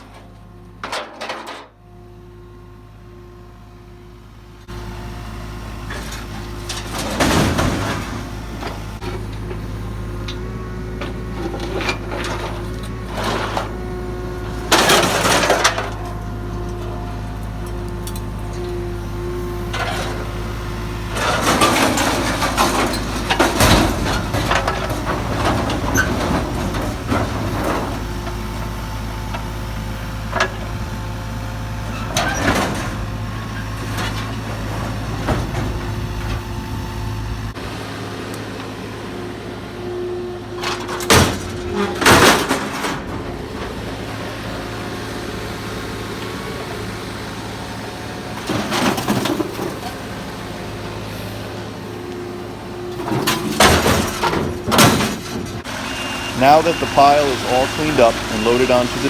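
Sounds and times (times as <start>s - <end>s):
scrap metal clanking and crashing: 0.0s - 1.8s, 5.8s - 18.9s, 19.6s - 28.7s, 31.8s - 36.8s, 40.4s - 44.7s, 48.1s - 51.9s, 52.8s - 59.0s
excavator engine rumble: 0.0s - 59.0s.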